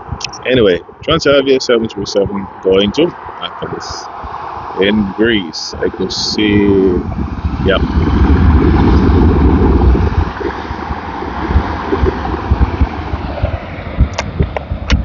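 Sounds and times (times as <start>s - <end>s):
jet engines roaring: 0.0s - 15.0s
wind buffeting microphone: 0.0s - 15.0s
sharp click: 0.2s - 0.4s.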